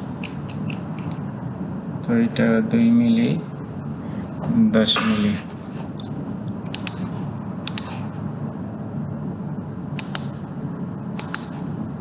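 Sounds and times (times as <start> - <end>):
low fan hum: 0.0 - 12.0
computer clicks: 6.7 - 7.0, 10.0 - 10.3, 11.2 - 11.5.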